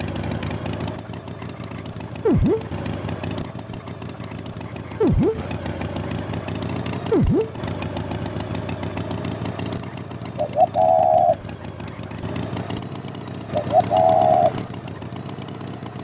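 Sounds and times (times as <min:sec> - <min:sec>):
cartoon toy engine running: 0:00.0 - 0:16.0
warbling horn-like tone: 0:02.2 - 0:02.7, 0:05.0 - 0:05.5, 0:07.1 - 0:07.6, 0:13.6 - 0:14.5
short beeps: 0:02.3 - 0:02.7, 0:05.0 - 0:05.5, 0:07.1 - 0:07.6.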